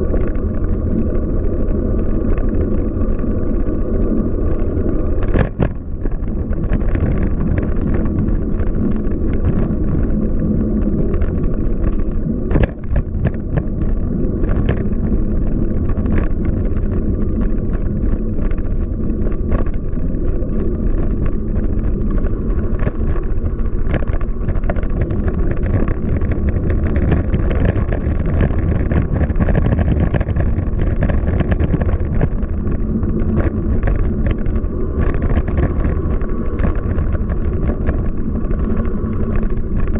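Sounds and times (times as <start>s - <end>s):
bicycle road rumble: 0.0s - 39.9s
wind buffeting on microphone: 0.0s - 39.9s
sharp clicks and knocks: 5.1s - 10.2s, 11.0s - 39.9s.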